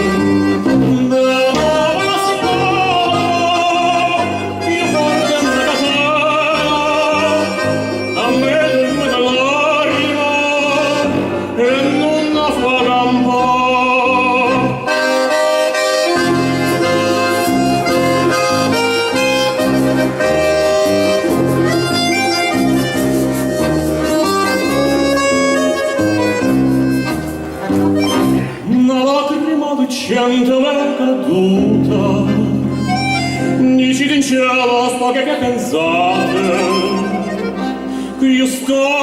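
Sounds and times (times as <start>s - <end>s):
lead melody with heavy vibrato: 0.0s - 29.0s, 31.6s - 34.2s, 34.8s - 39.0s
pulsing bass line: 15.8s - 28.6s.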